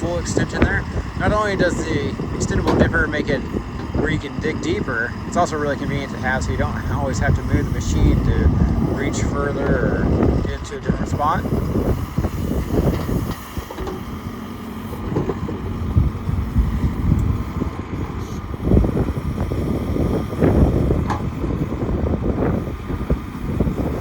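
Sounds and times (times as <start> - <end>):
backhoe diesel engine running: 0.0 - 24.0.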